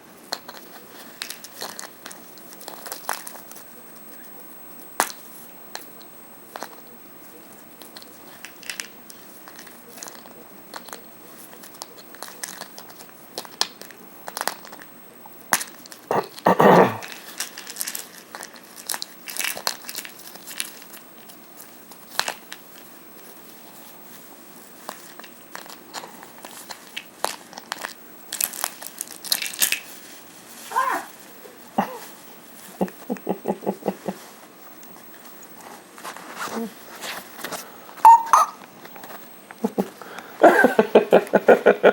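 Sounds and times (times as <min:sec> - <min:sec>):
sharp clicks and crinkling: 0:00.3 - 0:04.3, 0:07.6 - 0:16.1, 0:17.0 - 0:30.2
parrot biting plastic pill bottle: 0:38.0 - 0:39.1.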